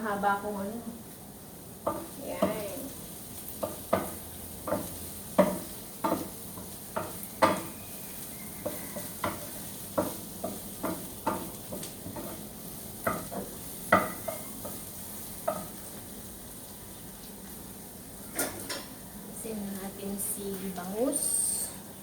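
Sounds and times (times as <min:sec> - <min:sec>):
food sizzling in a pan: 0:00.0 - 0:22.0.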